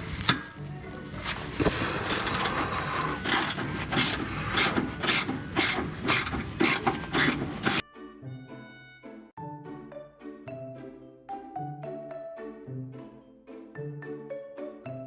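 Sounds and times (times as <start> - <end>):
ratchet wrench clicking: 1.6 - 7.8
light chiming background music: 9.4 - 15.0.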